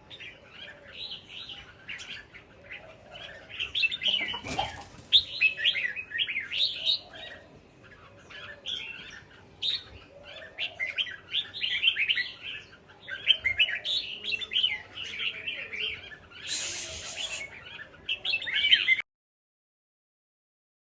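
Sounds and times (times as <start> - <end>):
birds chirping and chattering: 0.0 - 19.0.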